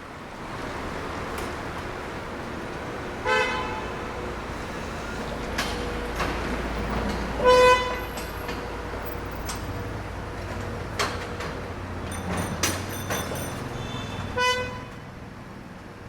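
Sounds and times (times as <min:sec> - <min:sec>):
street traffic rumble: 0:00.0 - 0:16.0
vehicle horn honk: 0:03.2 - 0:03.9, 0:07.4 - 0:08.1, 0:13.8 - 0:15.0.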